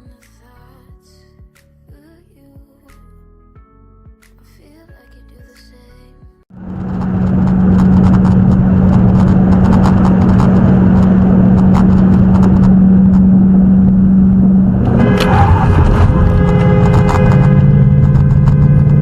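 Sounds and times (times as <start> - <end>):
car engine running: 6.5 - 19.0
loud road noise: 6.5 - 19.0
sharp clicks and rattles: 6.6 - 19.0
steady tones: 6.6 - 19.0.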